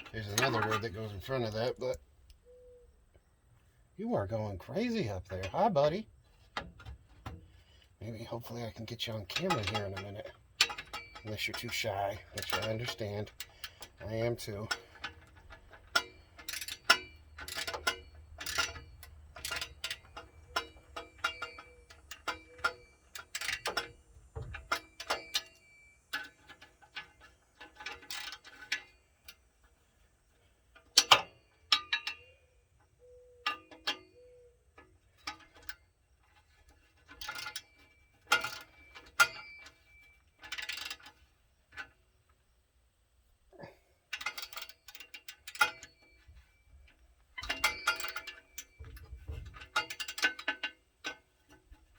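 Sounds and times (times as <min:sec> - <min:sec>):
ratchet wrench clicking: 0:14.9 - 0:23.8.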